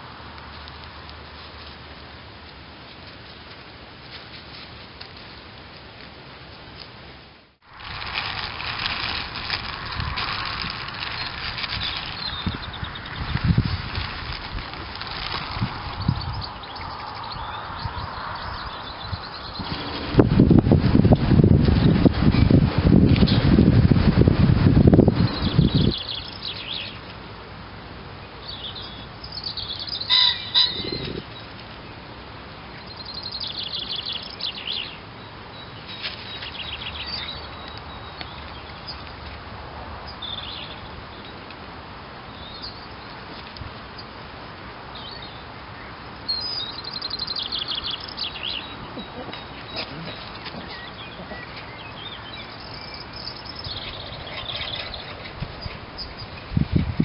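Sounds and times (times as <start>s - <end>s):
outdoor background hiss: 0.0s - 57.0s
songbirds chirping: 8.7s - 20.4s, 24.9s - 56.7s.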